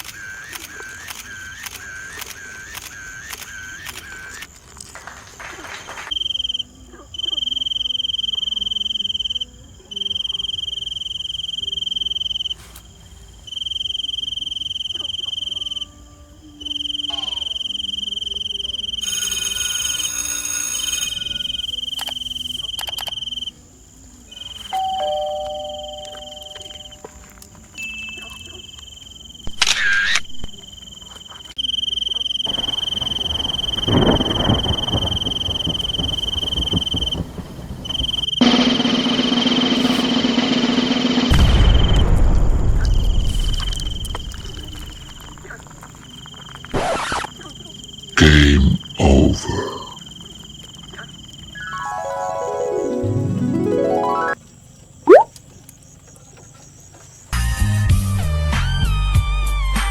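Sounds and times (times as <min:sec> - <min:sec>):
cricket trilling: 0:00.0 - 0:59.9
brief squeaky burst: 0:46.7 - 0:47.4.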